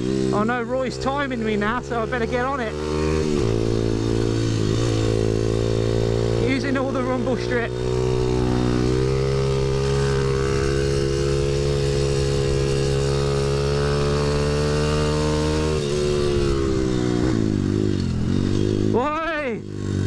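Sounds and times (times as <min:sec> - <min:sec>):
motorbike engine at high revs: 0:00.0 - 0:20.0.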